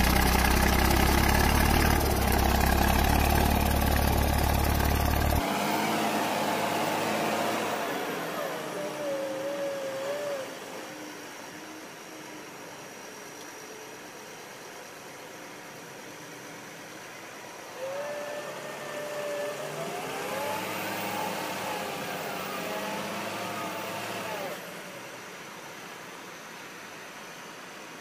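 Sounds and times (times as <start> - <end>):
tractor engine revving: 0.0 - 10.8, 17.8 - 24.6
steady background hiss: 6.6 - 20.0, 20.7 - 28.0.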